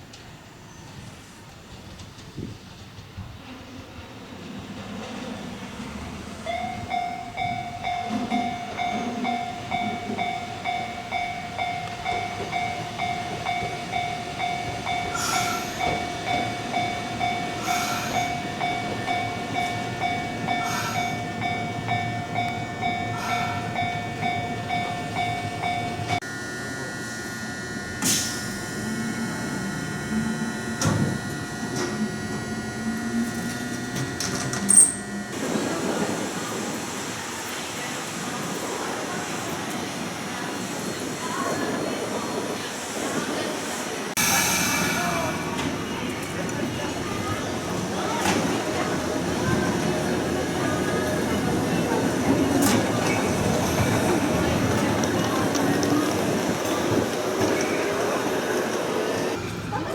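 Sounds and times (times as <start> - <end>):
train running noise: 0.0 - 59.9
level crossing alarm dinging: 6.5 - 35.6
electric whine: 26.2 - 35.5.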